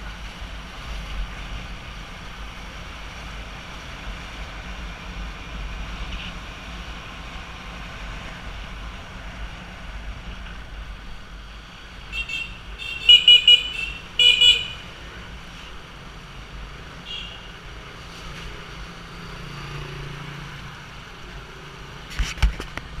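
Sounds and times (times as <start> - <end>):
road traffic noise: 0.0 - 23.0
vehicle horn honking: 12.1 - 14.9, 17.1 - 17.5.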